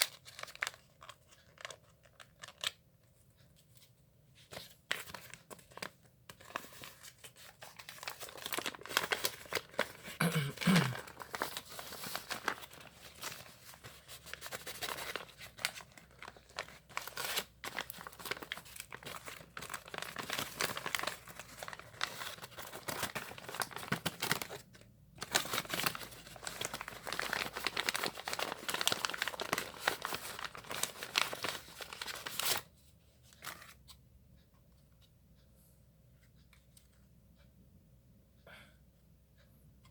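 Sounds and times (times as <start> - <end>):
packaging crinkling and tearing: 0.0 - 2.8, 4.6 - 32.7.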